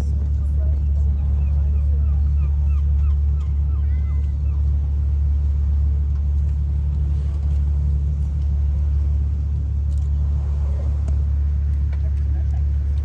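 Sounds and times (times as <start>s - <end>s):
ship engine drone: 0.0s - 13.0s.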